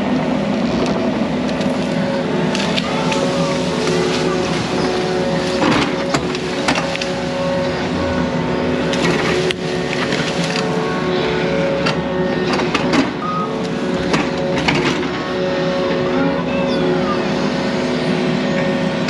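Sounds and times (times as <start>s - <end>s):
diesel engine running: 0.0s - 19.0s
machine clanking and knocking: 0.7s - 15.4s.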